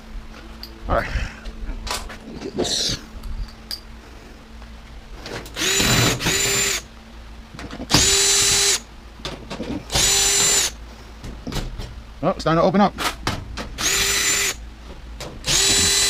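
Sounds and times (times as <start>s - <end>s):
power drill whining: 5.6s - 6.8s, 7.9s - 8.8s, 9.9s - 10.8s, 13.8s - 14.6s, 15.4s - 16.0s.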